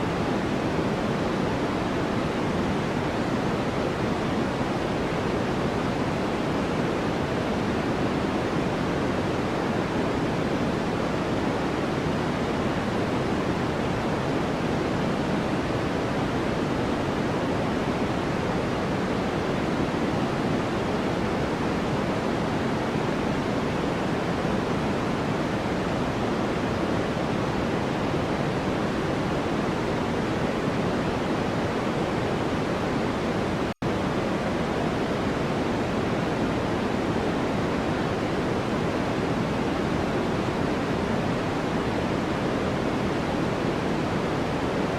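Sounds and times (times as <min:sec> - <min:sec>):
white noise hiss: 0:00.0 - 0:44.9.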